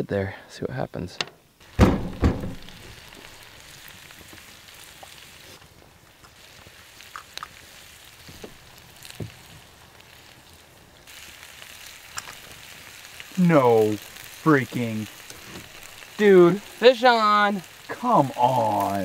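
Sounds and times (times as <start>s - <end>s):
vegetables sizzling in a wok: 1.6s - 19.0s
pops and crackles: 2.3s - 14.4s, 15.0s - 16.6s.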